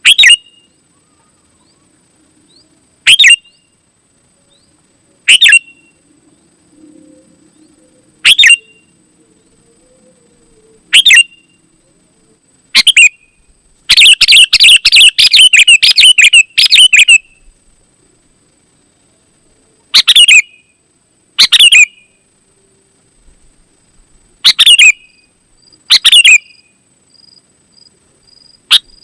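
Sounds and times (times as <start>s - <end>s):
bird singing whistled phrases: 0.0s - 1.8s, 5.3s - 6.0s, 7.6s - 8.9s, 10.9s - 11.6s, 12.8s - 17.5s, 20.0s - 20.7s, 21.4s - 22.2s.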